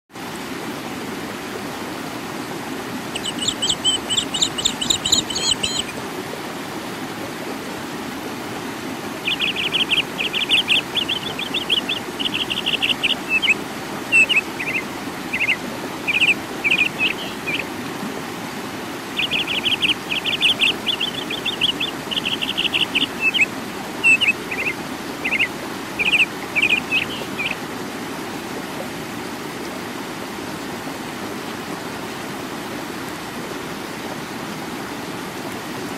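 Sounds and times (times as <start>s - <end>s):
stream rushing over rocks: 0.2s - 35.9s
songbird singing: 3.1s - 6.0s, 9.2s - 17.7s, 19.2s - 27.6s.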